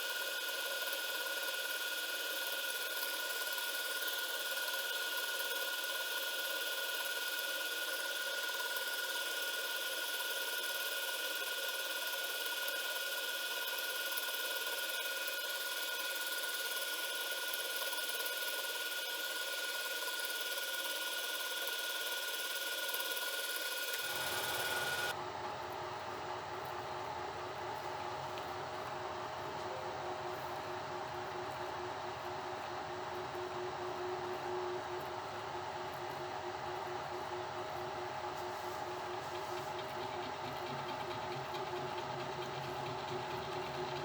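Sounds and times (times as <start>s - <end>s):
milling spindle whine: 24.0s - 25.2s, 38.8s - 44.0s.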